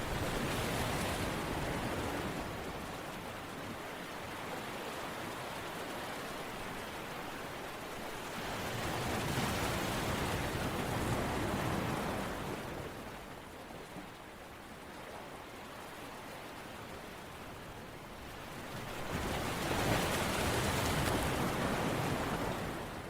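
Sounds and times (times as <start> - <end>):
rushing water: 0.0 - 23.0.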